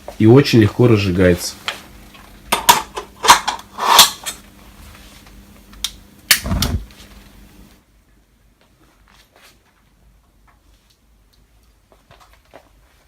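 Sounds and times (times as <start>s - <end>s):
fireplace clicks and knocks: 5.8s - 6.9s.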